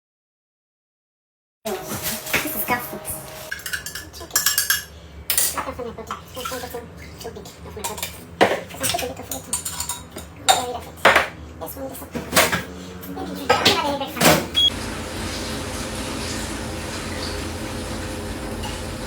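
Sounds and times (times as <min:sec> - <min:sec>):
metal utensils and cookware clattering: 0:01.7 - 0:11.3, 0:11.9 - 0:14.5.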